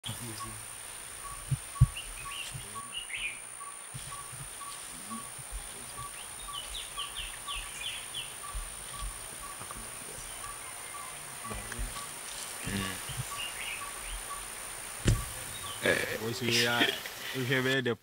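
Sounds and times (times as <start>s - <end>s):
bird chirps: 0.0s - 17.2s
soft low thumps: 0.2s - 3.0s, 3.8s - 10.6s, 11.5s - 14.3s, 15.0s - 15.8s.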